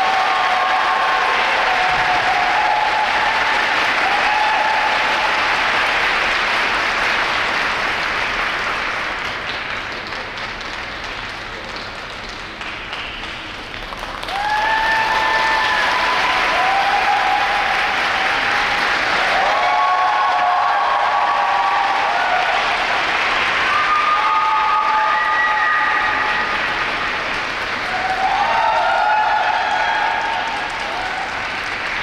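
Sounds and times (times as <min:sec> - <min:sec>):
crowd calling out: 0:00.0 - 0:05.4
audience applauding: 0:00.0 - 0:32.0.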